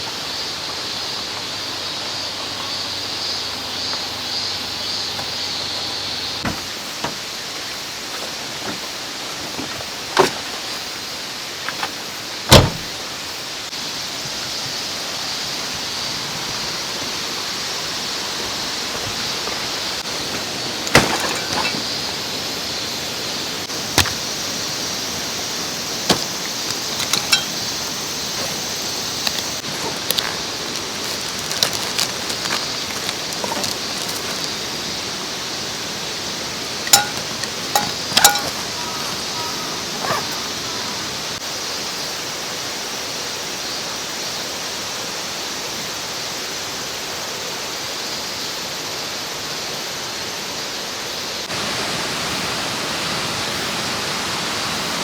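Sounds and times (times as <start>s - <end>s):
mountain stream rushing: 5.0s - 41.4s, 51.4s - 55.0s.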